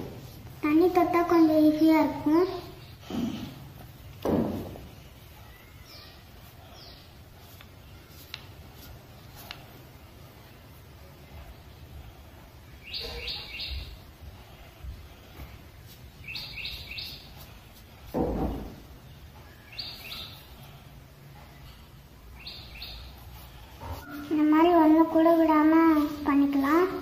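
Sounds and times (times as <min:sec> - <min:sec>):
short dull thump: 0:04.2 - 0:04.9
bird chirping: 0:04.9 - 0:08.2, 0:12.7 - 0:14.2, 0:16.2 - 0:17.6, 0:19.0 - 0:24.4.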